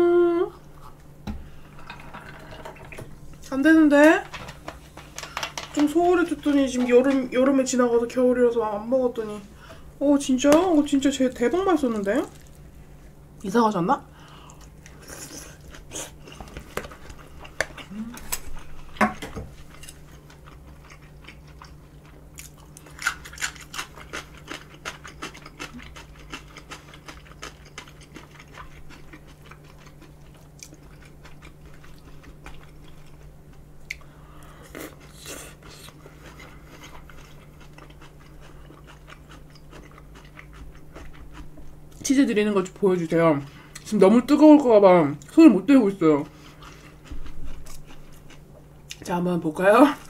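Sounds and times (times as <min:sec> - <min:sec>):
person chewing food: 0:14.2 - 0:42.0, 0:46.2 - 0:49.0.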